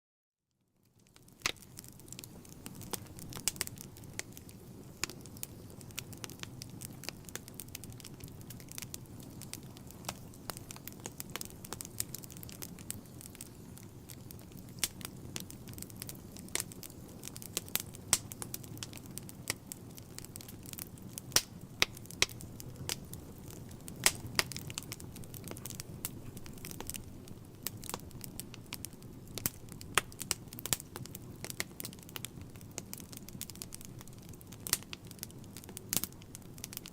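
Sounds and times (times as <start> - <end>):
wood fire crackling: 0.8 - 36.9.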